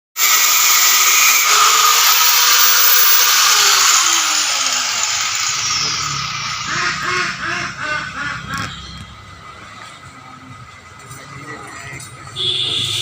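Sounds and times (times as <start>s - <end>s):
power tool cutting steel bar: 0.2s - 8.2s.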